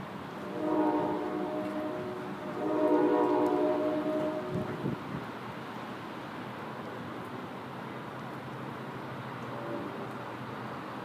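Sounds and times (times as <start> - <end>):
horn sounding a held chord: 0.5 - 4.8.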